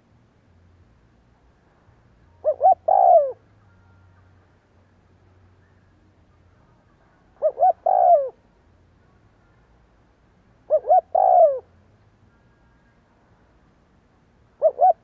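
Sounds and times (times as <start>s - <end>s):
dove cooing: 2.4s - 3.4s, 7.4s - 8.4s, 10.6s - 11.7s, 14.6s - 15.0s.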